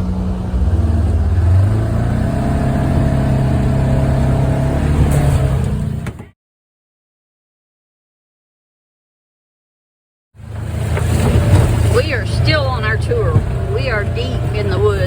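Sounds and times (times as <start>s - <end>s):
utility vehicle engine running: 0.0s - 6.3s, 10.4s - 15.0s.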